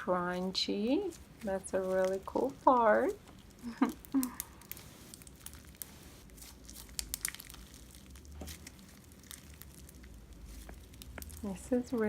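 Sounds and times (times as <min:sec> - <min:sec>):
slime crunchy crackles: 0:01.0 - 0:12.0.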